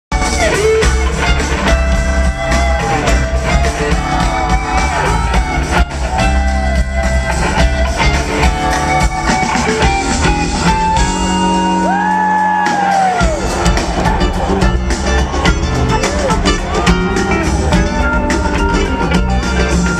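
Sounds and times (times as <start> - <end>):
live rock music: 0.1 - 19.9
crowd shouting: 11.3 - 18.6.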